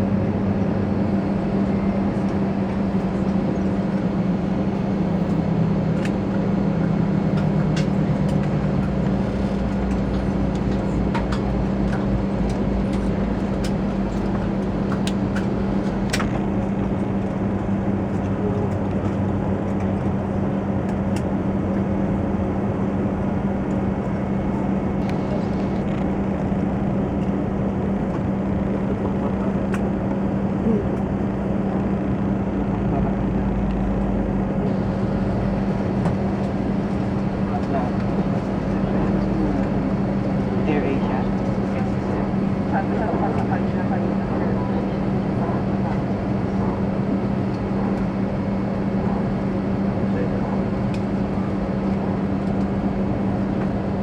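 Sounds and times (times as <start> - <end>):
airplane cabin hum: 0.0 - 54.0.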